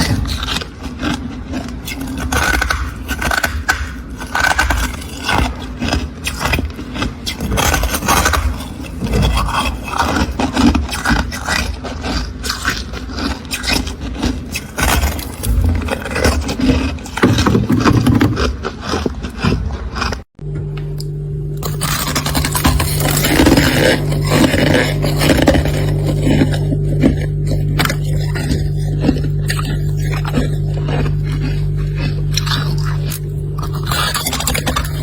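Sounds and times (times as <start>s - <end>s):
freezer frost being scraped: 0.0s - 20.2s, 21.6s - 35.0s.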